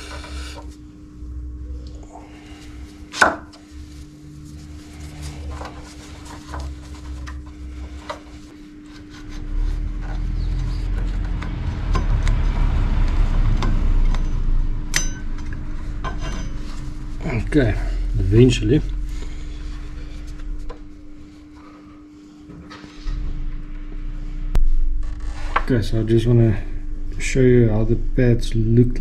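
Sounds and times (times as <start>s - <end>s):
metal rubbing and scraping: 2.0s - 22.0s
sharp metal clack: 14.1s - 15.5s.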